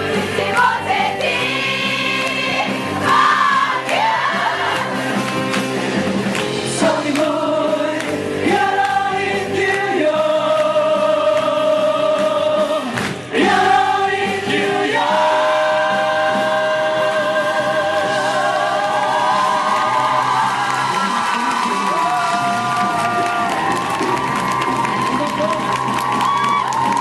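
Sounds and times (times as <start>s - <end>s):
chorus singing: 0.0s - 21.2s
musical accompaniment: 0.0s - 27.0s.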